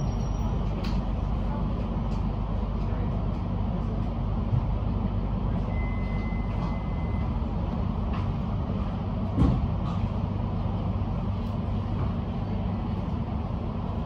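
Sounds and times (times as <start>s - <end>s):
electric train humming: 0.0s - 14.0s
thump: 9.4s - 9.7s.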